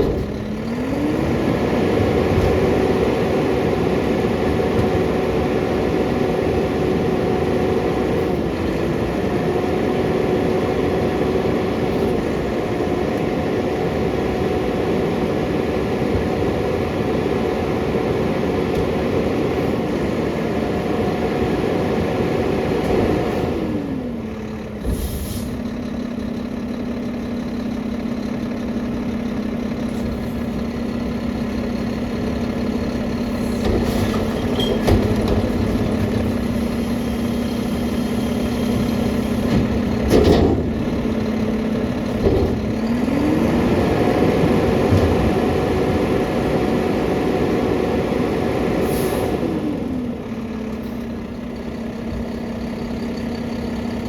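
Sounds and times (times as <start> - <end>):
clunks: 0.0 - 1.0, 2.0 - 3.2, 28.9 - 43.2, 44.4 - 45.7
garbage truck diesel engine: 0.0 - 54.0
short air hisses: 24.9 - 25.6.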